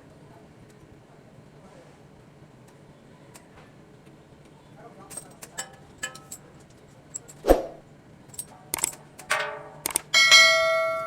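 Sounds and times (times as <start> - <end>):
metal clinks and knock: 5.1 - 7.4, 8.3 - 10.9
ringing metal clang: 5.6 - 6.5, 9.3 - 11.0.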